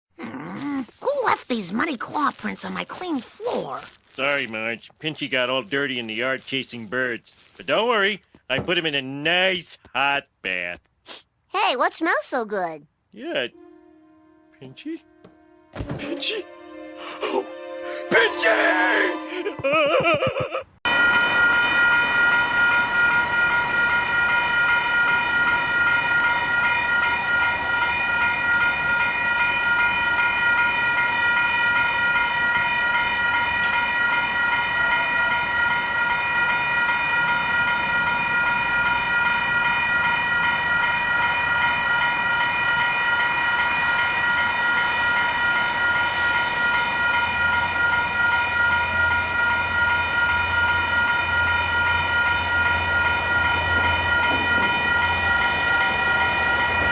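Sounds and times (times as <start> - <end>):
level crossing warning bells: 13.2 - 56.9.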